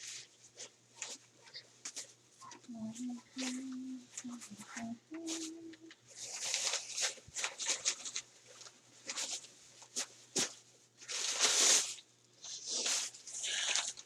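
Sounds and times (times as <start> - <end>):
paper bag rustling and crinkling: 3.3 - 14.0.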